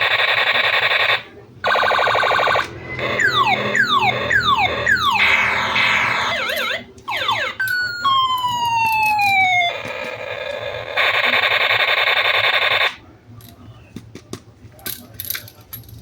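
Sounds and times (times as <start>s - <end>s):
electronic toy siren sounds: 0.0s - 13.0s
harsh electronic buzzing: 1.7s - 6.8s.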